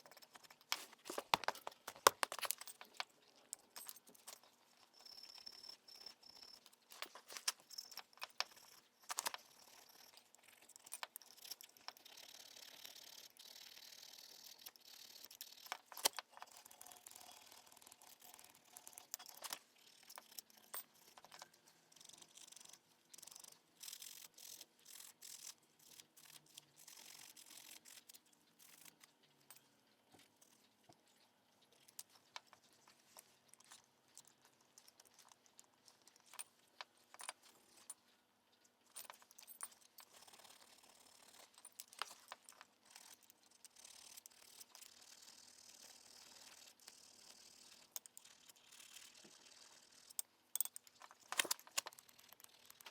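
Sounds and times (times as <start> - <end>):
metallic clicks of hand tools: 50.1 - 52.9.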